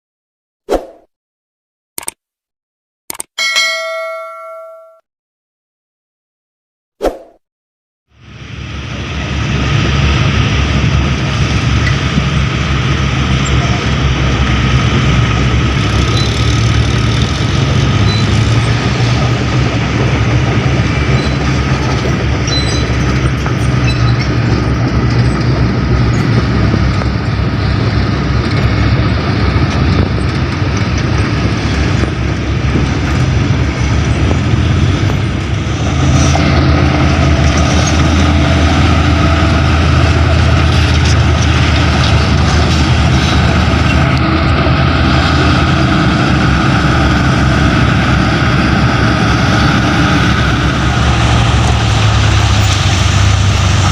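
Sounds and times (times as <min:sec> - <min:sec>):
dump truck diesel engine: 0:08.1 - 0:53.9
broad rushing noise: 0:23.0 - 0:53.9.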